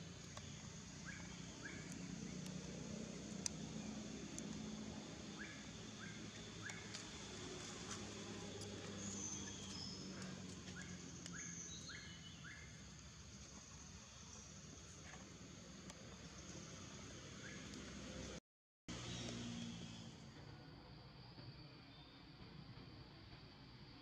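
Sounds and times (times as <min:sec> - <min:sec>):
birds chirping: 0:00.0 - 0:18.3.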